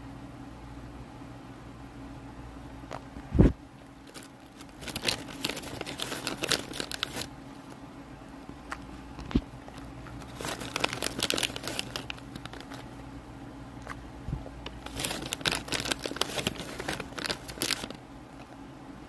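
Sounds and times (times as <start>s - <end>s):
wrapper crinkling: 4.0s - 7.8s, 9.1s - 13.0s, 13.8s - 18.0s.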